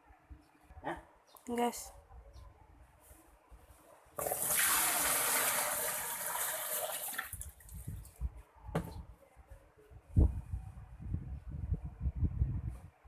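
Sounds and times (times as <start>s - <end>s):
water gushing from drain valve: 4.2s - 7.6s.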